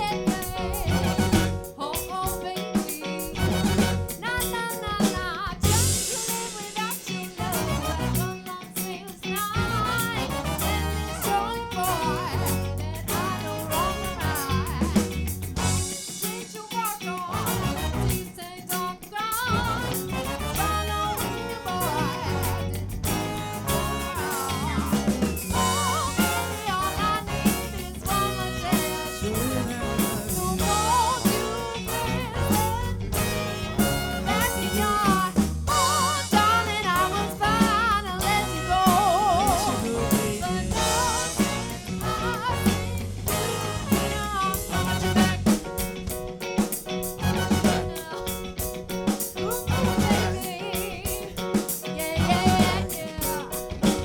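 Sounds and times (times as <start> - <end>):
bass guitar groove: 0.0 - 54.0
drum kit: 0.0 - 54.0
guitar: 0.0 - 54.0
wavering lead melody: 19.5 - 45.8.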